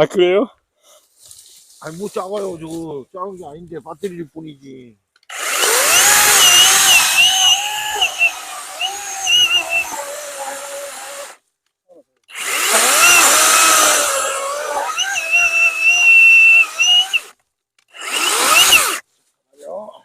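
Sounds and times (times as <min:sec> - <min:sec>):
electric chainsaw whining through wood: 0:05.2 - 0:11.4, 0:12.3 - 0:19.0.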